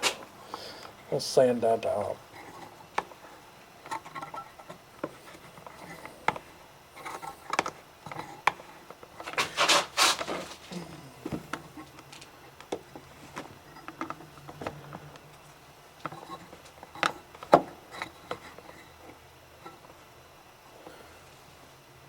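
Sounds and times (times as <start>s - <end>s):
sandpaper rubbing on plastic: 9.4s - 10.6s.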